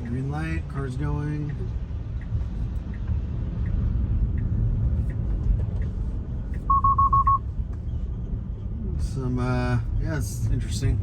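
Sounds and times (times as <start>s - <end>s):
turn signal ticking: 0.0s - 7.4s
road and tyre rumble: 0.0s - 11.0s
short high warning beeps: 6.7s - 7.4s.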